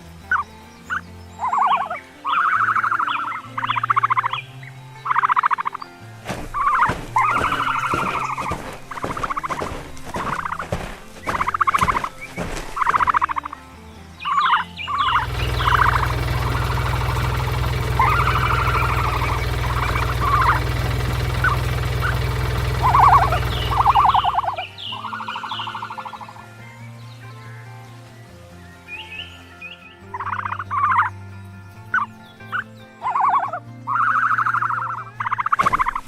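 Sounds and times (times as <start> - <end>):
poultry calls: 0.3 - 26.4, 30.1 - 31.1, 31.9 - 36.0
low machine hum: 14.9 - 24.6.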